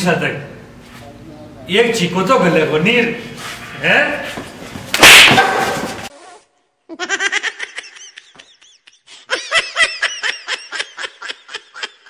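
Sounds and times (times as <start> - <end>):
person laughing: 6.9 - 12.0.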